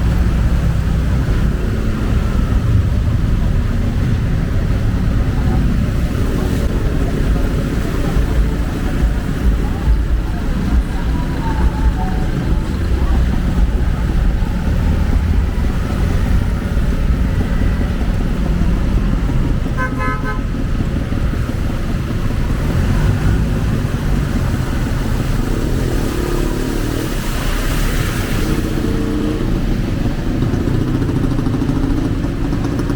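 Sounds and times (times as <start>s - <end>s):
vehicle engines passing: 0.0s - 32.9s
vehicle horn toot: 19.8s - 20.6s.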